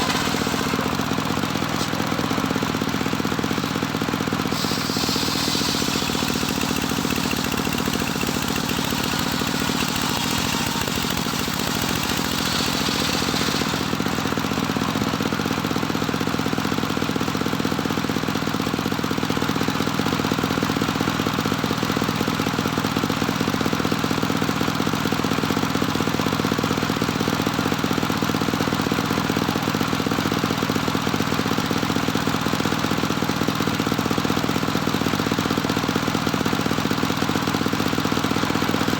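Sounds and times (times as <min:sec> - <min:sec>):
circular saw engine running: 0:00.0 - 0:15.4
high hissing: 0:04.5 - 0:06.4.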